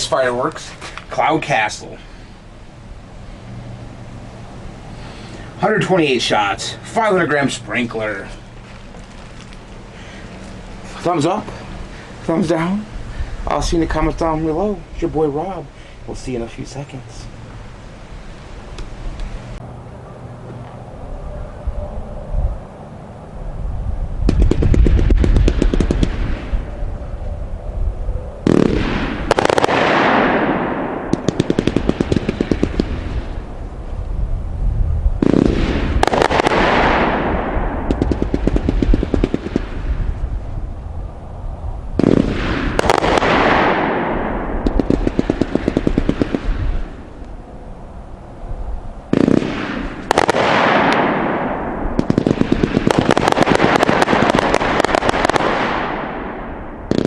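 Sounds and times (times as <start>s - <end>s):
firework cake shots: 42.0s - 46.7s.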